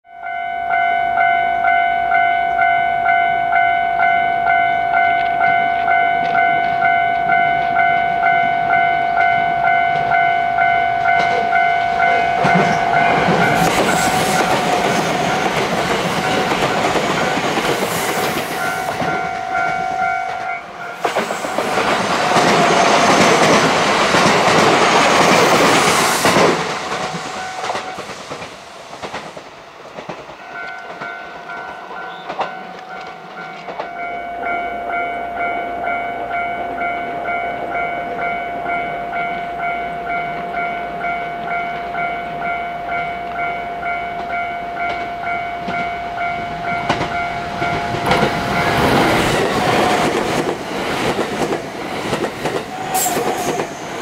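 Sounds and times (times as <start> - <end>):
level crossing alarm ringing: 0.1 - 23.6, 30.4 - 50.5
electric train passing: 0.2 - 54.0
train rumble and wheel noise: 0.2 - 54.0.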